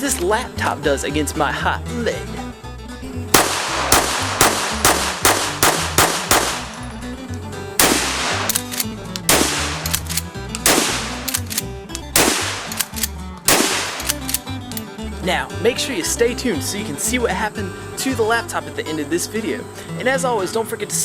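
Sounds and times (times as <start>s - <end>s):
background music with bass: 0.0s - 21.0s
rapid gunshots: 3.4s - 6.8s, 7.8s - 11.5s, 12.2s - 14.3s.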